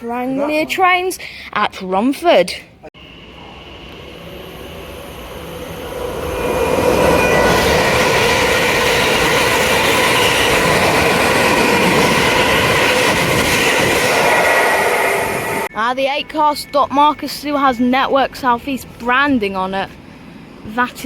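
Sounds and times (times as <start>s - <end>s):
faint steady whine: 3.0s - 8.2s
train wheels rushing on rails: 3.0s - 21.0s.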